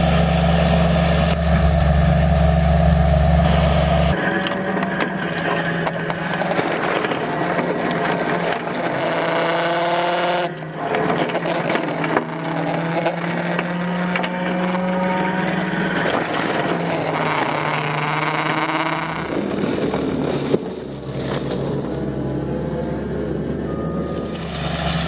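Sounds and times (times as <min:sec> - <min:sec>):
heavy machine engine running: 0:00.0 - 0:13.0, 0:14.0 - 0:25.0
mechanical whine: 0:00.0 - 0:13.3, 0:21.8 - 0:25.0.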